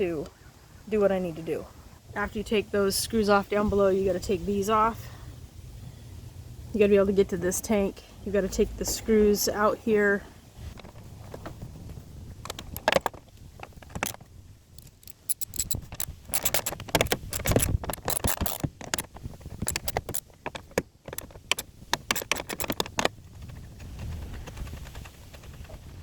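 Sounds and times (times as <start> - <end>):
hand tools and screws rattling: 12.5 - 23.2.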